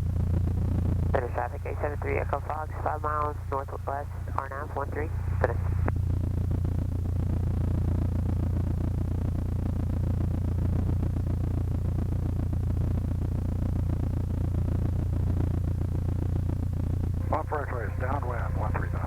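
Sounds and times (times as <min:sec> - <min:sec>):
airplane engine idling: 0:00.0 - 0:09.4, 0:14.4 - 0:19.0.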